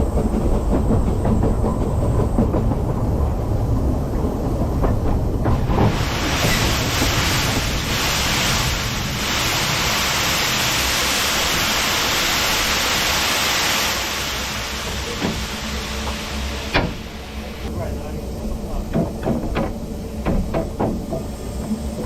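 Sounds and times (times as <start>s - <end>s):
train rumbling: 0.0s - 22.0s
steam hissing: 5.0s - 22.0s.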